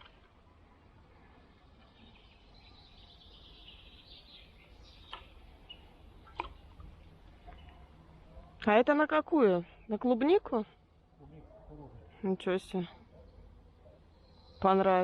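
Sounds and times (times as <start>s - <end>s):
birds chirping: 0.8s - 8.8s, 11.4s - 15.0s.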